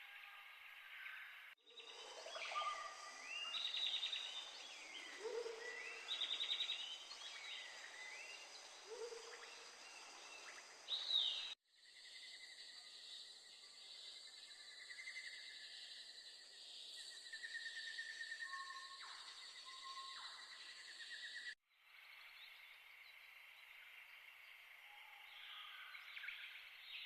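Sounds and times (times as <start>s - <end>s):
insect drone: 3.0s - 19.7s.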